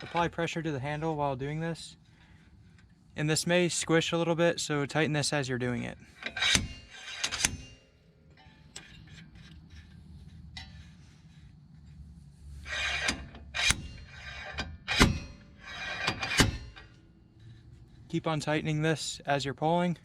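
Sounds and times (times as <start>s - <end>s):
slide hammer striking metal: 6.2s - 7.8s, 12.7s - 16.9s.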